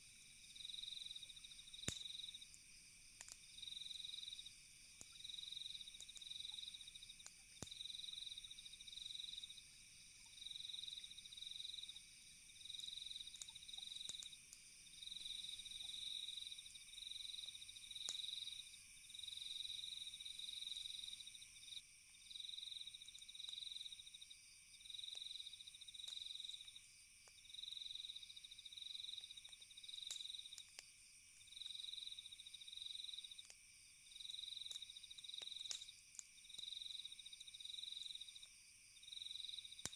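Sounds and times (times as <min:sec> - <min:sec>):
crickets trilling: 0:00.0 - 0:39.9
faint campfire crackles: 0:00.0 - 0:39.9.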